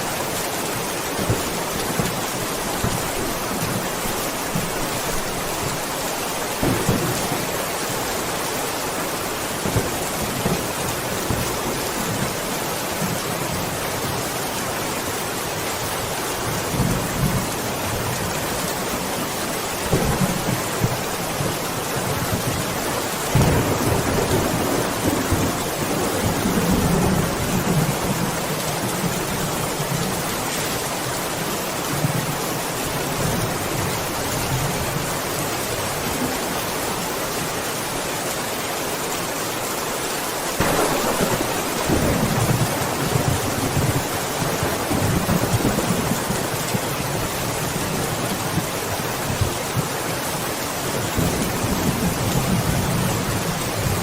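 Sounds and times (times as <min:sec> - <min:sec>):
heavy rain: 0:00.0 - 0:54.0
thunder rumbling: 0:01.1 - 0:12.4, 0:19.8 - 0:30.2, 0:40.6 - 0:49.6.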